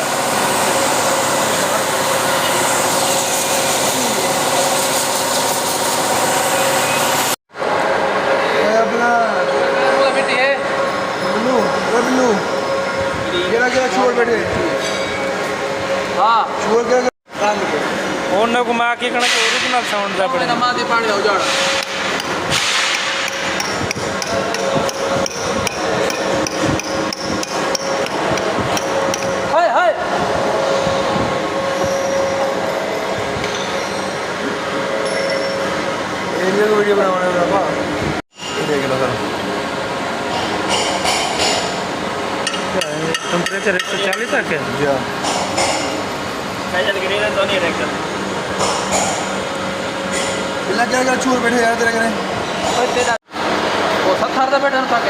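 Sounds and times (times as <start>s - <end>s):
steady hum: 5.7s - 38.2s
hammer striking metal: 21.4s - 29.4s, 40.4s - 41.8s, 42.4s - 44.5s.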